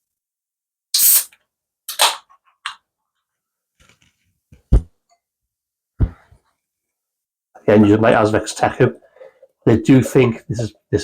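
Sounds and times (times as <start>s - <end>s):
beer can opening with hiss: 0.9s - 2.2s
dull knock: 6.0s - 6.3s.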